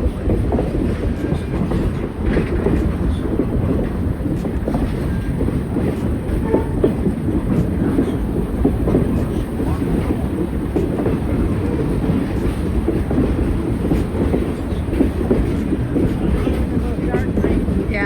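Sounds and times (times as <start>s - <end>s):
train rumbling and clattering: 0.0s - 18.0s.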